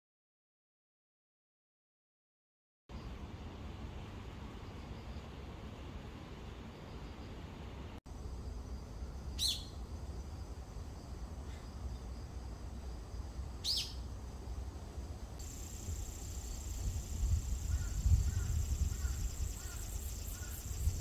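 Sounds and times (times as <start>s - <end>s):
high-pitched insect buzz: 15.4s - 21.0s
sharp downward bird calls: 17.6s - 20.8s.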